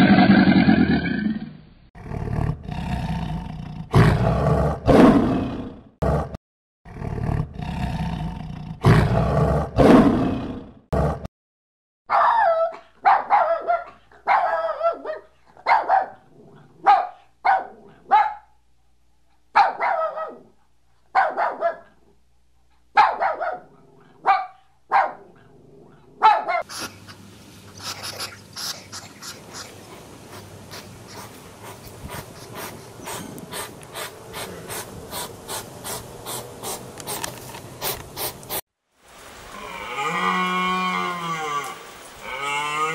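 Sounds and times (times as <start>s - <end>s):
puppy barking: 12.1s - 16.2s, 16.8s - 18.5s, 19.5s - 20.5s, 21.1s - 22.0s, 22.9s - 25.4s, 26.2s - 26.7s
hedgehog snuffling: 26.7s - 38.6s.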